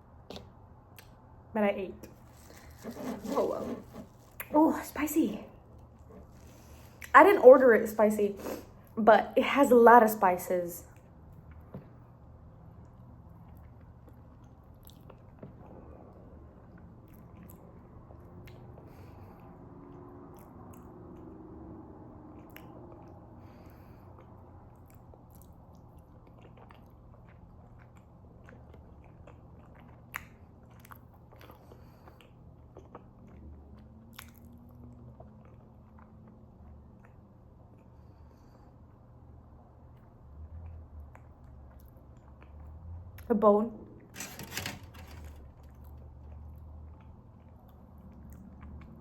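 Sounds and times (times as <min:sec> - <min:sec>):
chewing and biting food: 0:12.8 - 0:19.1, 0:24.0 - 0:38.2.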